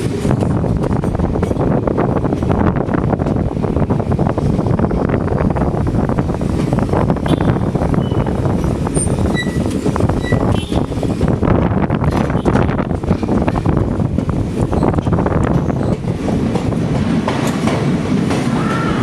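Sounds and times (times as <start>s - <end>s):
train wheels rumbling on rails: 0.0s - 19.0s
wind buffeting microphone: 0.0s - 19.0s.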